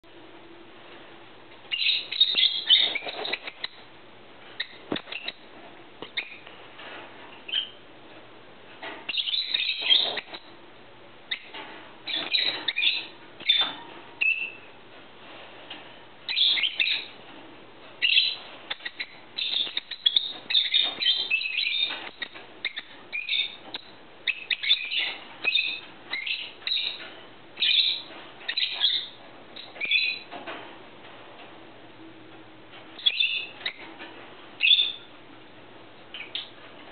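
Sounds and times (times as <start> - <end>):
small birds chirping: 1.6 - 3.9, 4.5 - 6.5, 7.4 - 7.8, 8.8 - 10.6, 11.2 - 14.8, 16.2 - 17.3, 18.0 - 30.4, 33.0 - 34.0, 34.6 - 35.2, 36.1 - 36.7.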